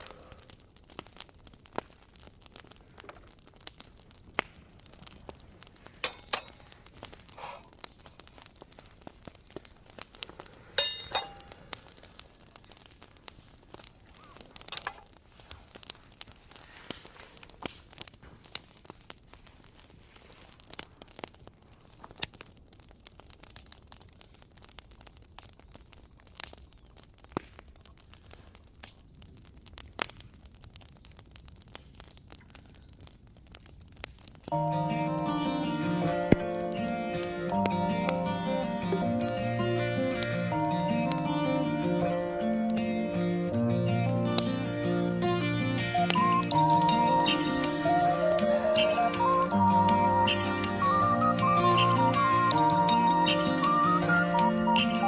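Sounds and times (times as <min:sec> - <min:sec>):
campfire crackling and popping: 0:00.0 - 0:55.0
ringing clinks of cookware: 0:06.0 - 0:06.9, 0:10.8 - 0:11.5.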